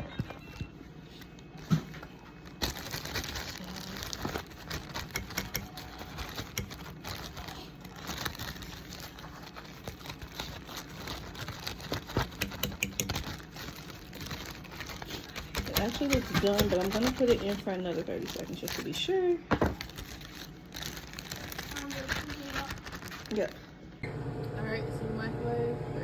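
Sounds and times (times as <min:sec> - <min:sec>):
plastic bag crinkling: 0:01.1 - 0:23.8.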